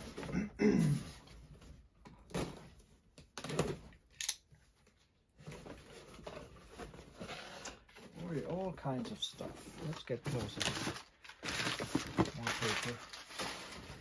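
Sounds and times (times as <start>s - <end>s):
packing paper rustling: 5.6s - 14.0s.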